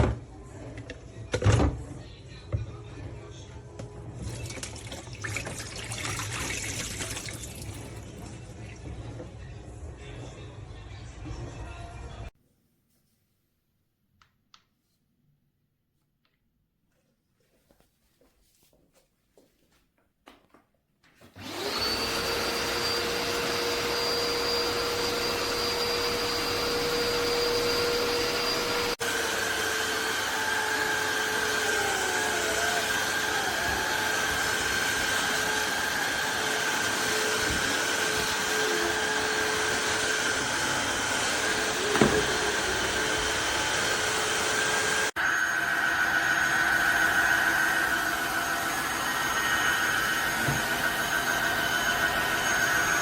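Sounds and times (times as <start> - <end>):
floor vacuum motor running: 21.4 - 53.0.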